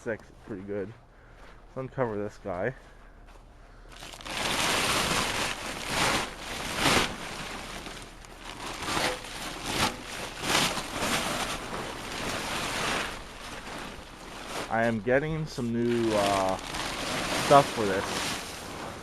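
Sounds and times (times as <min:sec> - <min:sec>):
plastic tarp rustling and crinkling: 0:03.9 - 0:19.0.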